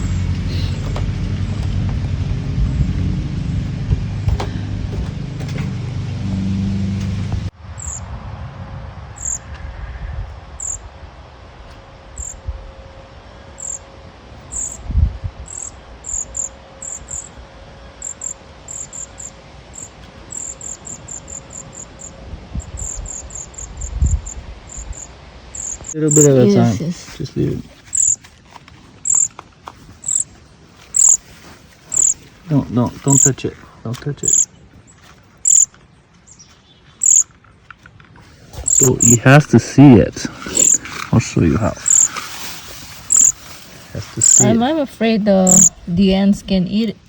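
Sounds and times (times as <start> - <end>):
low rumble: 0.0 - 28.1
short high-pitched chirps: 30.9 - 31.2, 35.5 - 35.7, 37.0 - 37.2, 38.6 - 39.2, 43.1 - 43.4, 44.2 - 44.6.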